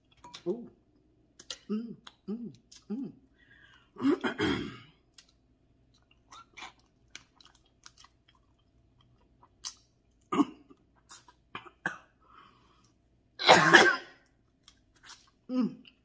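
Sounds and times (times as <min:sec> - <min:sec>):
lip smacks: 0:01.3 - 0:02.9
wet chewing: 0:05.1 - 0:10.3.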